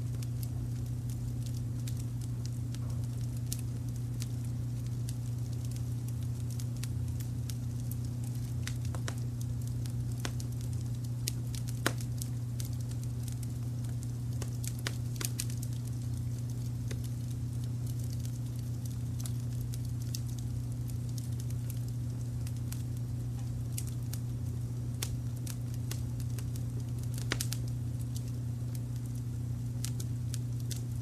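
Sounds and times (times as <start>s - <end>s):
low rumble of brown noise: 0.0s - 31.0s
wood fire crackling: 0.0s - 31.0s.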